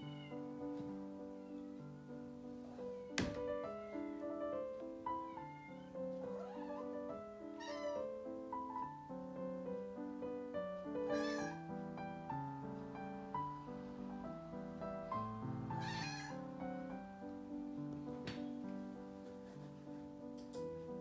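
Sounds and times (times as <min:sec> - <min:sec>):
cat meowing: 0:00.0 - 0:00.5, 0:01.2 - 0:02.2, 0:05.2 - 0:08.2, 0:11.0 - 0:11.6, 0:15.8 - 0:16.5
piano-like background music: 0:00.0 - 0:21.0.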